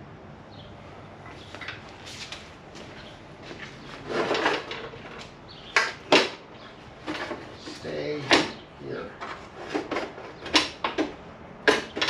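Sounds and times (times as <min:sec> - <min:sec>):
hand tools scraping and clattering: 0:01.3 - 0:12.0
sharp knocks: 0:08.2 - 0:08.6.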